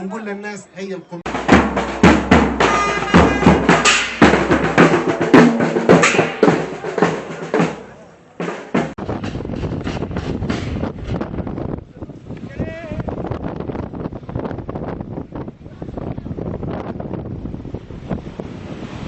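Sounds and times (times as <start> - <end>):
music with drum-kit beat: 1.3 - 10.9
steady rushing noise: 8.8 - 19.0.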